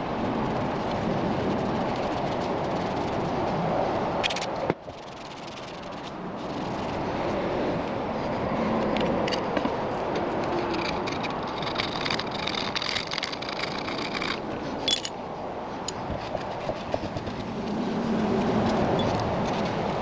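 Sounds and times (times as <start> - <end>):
hand tool scraping metal: 10.4 - 15.2.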